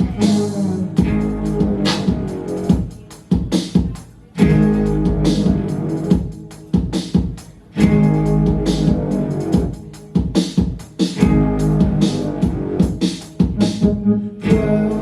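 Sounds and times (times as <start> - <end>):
drum hits: 1.0 - 14.8
guitar chords ringing: 11.2 - 12.8, 13.8 - 15.0.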